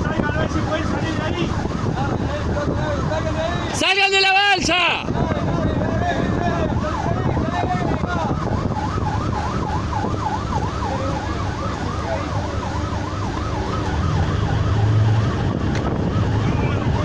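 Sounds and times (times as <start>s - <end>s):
electronic siren warbling: 8.1s - 17.0s.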